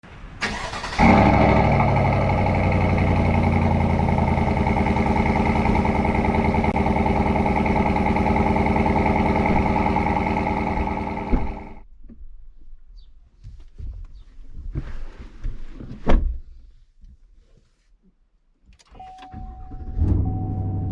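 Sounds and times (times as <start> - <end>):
engine cranking: 0.4 - 11.8
engine idling: 0.4 - 11.8.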